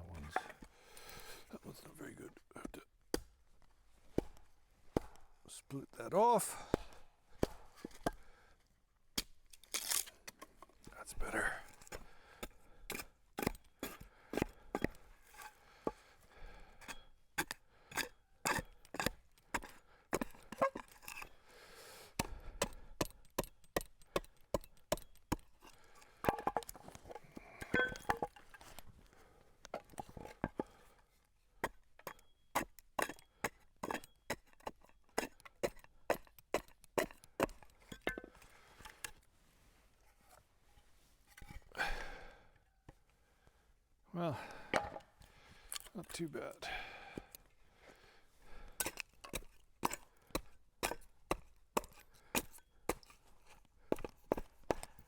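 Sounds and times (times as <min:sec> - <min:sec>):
hand tool knocking on wood: 0:44.8 - 0:45.0.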